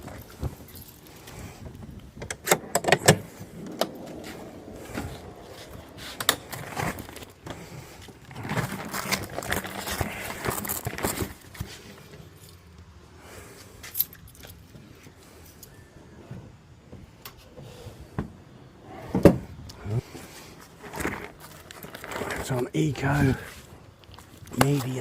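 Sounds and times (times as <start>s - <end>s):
small hard objects jangling: 8.3s - 12.7s.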